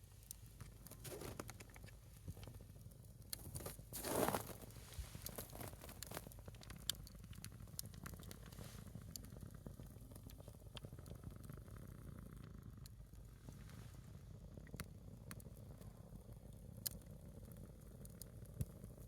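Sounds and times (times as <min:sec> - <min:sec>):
wood fire crackling and popping: 0:00.2 - 0:19.0.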